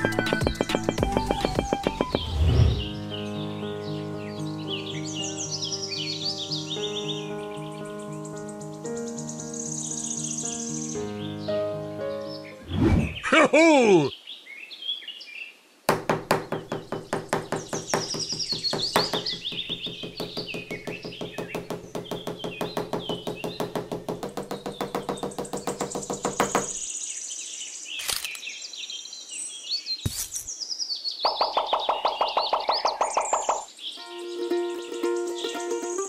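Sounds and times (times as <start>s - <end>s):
knocks: 0.0s - 2.3s, 15.9s - 26.8s
plucked-string music: 0.0s - 2.3s, 34.0s - 36.0s
birds chirping: 0.0s - 15.4s, 16.0s - 36.0s.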